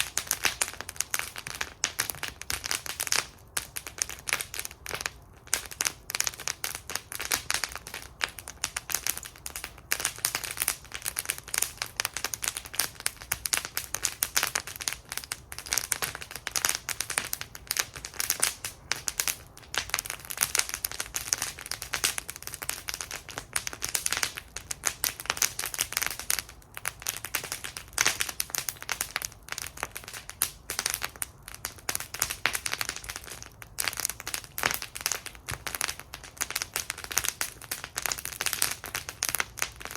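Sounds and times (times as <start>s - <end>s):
fire pops and snaps: 0.0s - 39.9s
wood fire crackling: 0.0s - 39.9s.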